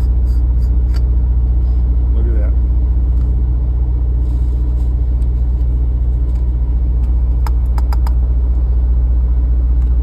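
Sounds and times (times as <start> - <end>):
truck engine idling: 0.0 - 10.0
sharp clicks: 7.4 - 8.2.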